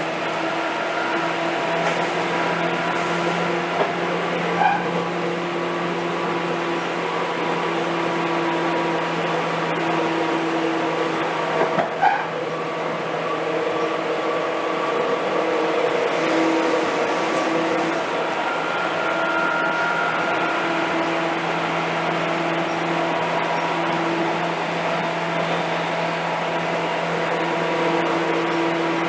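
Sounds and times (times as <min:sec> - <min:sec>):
train rolling and humming: 0:00.0 - 0:29.0
short train squeal: 0:00.6 - 0:03.7, 0:04.5 - 0:05.1, 0:11.8 - 0:12.4, 0:15.6 - 0:24.4.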